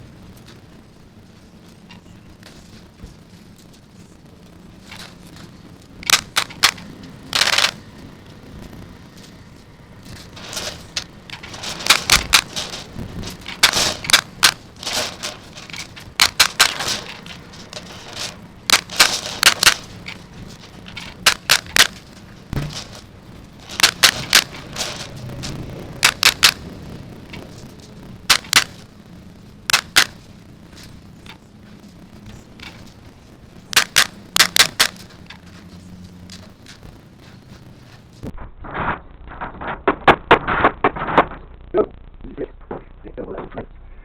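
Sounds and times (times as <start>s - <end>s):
scraping and rattling: 0.0s - 41.5s
sharp clicks and knocks of construction: 0.0s - 41.5s.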